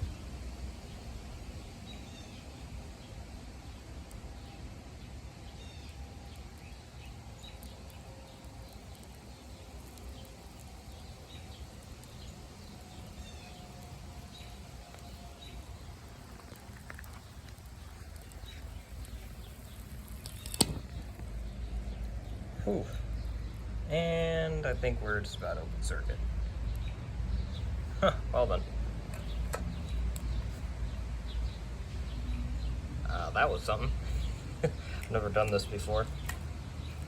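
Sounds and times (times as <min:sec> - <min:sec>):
low steady rumble: 0:00.0 - 0:37.0
small birds chirping: 0:00.0 - 0:37.0.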